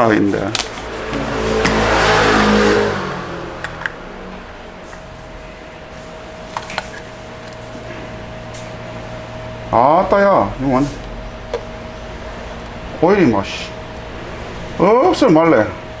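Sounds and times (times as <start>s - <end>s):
car engine revving and idling: 0.5s - 6.4s.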